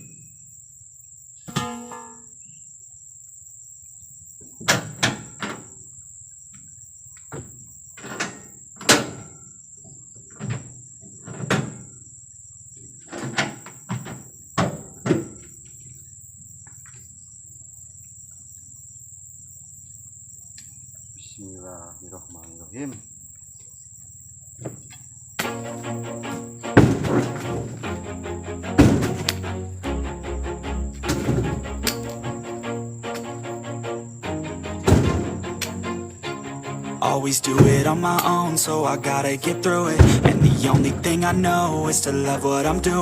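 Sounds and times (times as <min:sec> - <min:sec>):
fruit bunches thudding into truck bed: 0:13.2 - 0:15.5, 0:26.4 - 0:27.9, 0:28.7 - 0:29.6, 0:30.8 - 0:32.3, 0:34.8 - 0:35.8, 0:37.1 - 0:38.8, 0:39.6 - 0:43.0.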